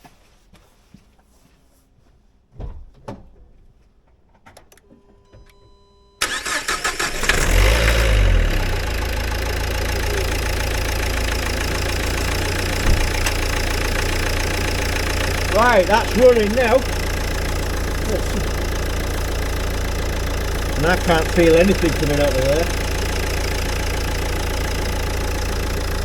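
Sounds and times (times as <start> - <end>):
diesel engine starting and idling: 4.7 - 26.0
knocks: 12.8 - 13.4.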